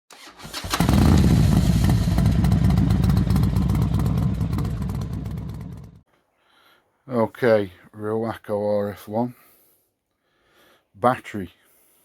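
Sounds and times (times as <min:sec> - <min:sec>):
trike engine with mechanical clatter: 0:00.1 - 0:06.0.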